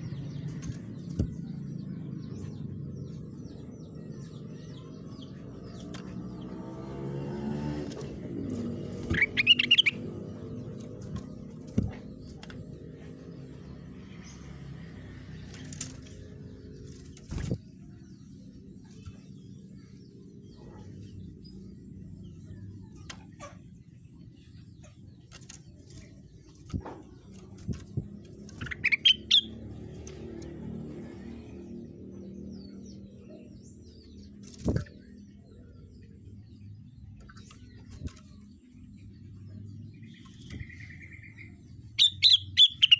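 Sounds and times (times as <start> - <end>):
songbird high rising chirps: 0.0 - 42.9.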